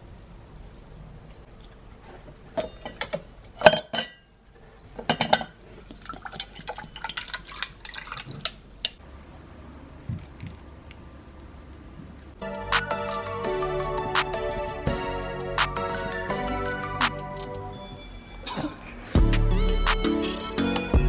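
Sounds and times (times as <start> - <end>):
liquid sounds: 6.1 - 12.4.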